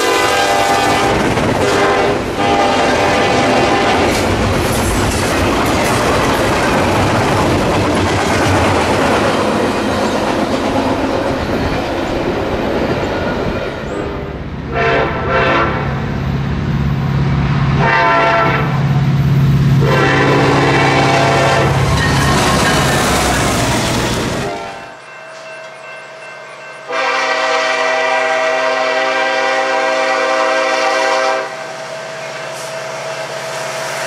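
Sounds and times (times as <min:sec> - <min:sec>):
locomotive horn blasts: 0:00.0 - 0:04.2, 0:14.0 - 0:16.0, 0:17.8 - 0:18.8, 0:19.8 - 0:21.9, 0:24.4 - 0:25.0, 0:26.9 - 0:31.7
train wheels clattering over rails: 0:00.8 - 0:14.0, 0:21.6 - 0:24.6.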